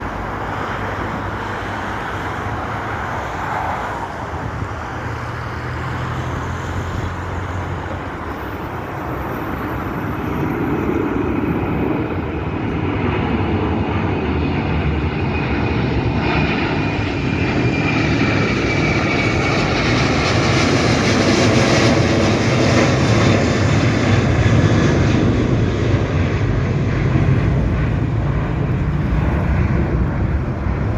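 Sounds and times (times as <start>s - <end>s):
jet airliner taking off: 0.0s - 30.9s
high engine whine falling: 21.9s - 30.9s.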